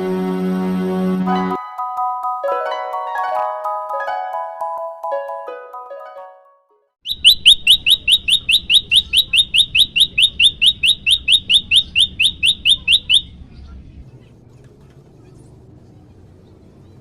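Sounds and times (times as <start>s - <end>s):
bird chirping rapidly: 7.0s - 13.4s.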